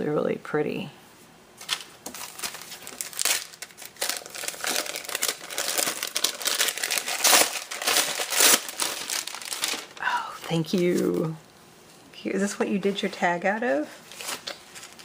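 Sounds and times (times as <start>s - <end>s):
packaging crinkling and rustling: 1.6s - 11.4s, 13.0s - 15.0s.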